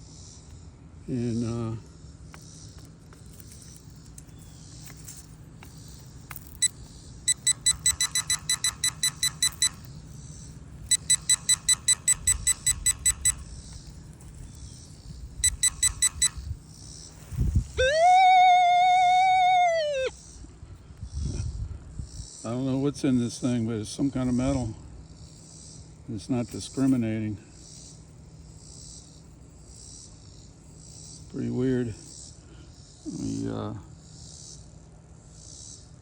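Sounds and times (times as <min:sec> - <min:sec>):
steady metal detector tone: 0:02.8 - 0:18.3
rapid high metal detector beeps: 0:03.4 - 0:18.0.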